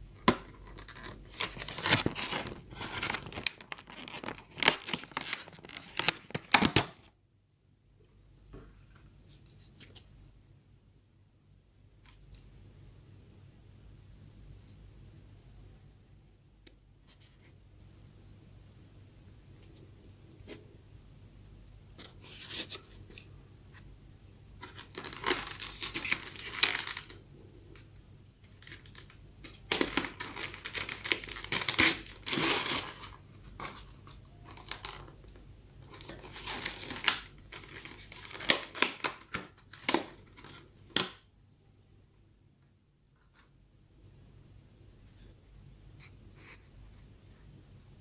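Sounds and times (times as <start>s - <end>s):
bread tearing and crinkling: 0.9s - 6.7s, 29.7s - 33.1s.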